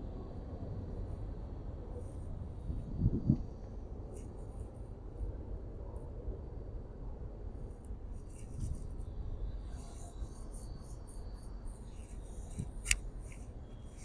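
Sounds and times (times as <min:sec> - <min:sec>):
steady low rumble: 0:00.0 - 0:14.0
faint high-pitched chirping: 0:08.2 - 0:14.0.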